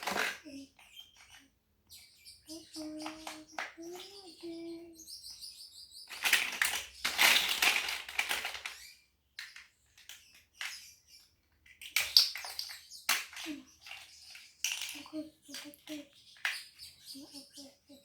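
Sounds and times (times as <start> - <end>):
plastic bricks clicking: 6.1 - 8.8, 11.6 - 16.6
plastic bricks rattling: 6.1 - 10.7, 11.6 - 16.0.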